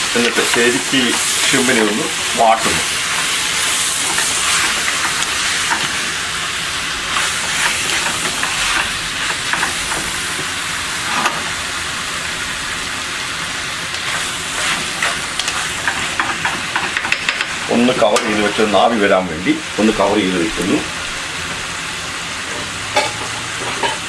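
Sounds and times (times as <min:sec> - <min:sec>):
food sizzling in hot oil: 0:00.0 - 0:24.0
spoon scraping a pan: 0:22.5 - 0:24.0.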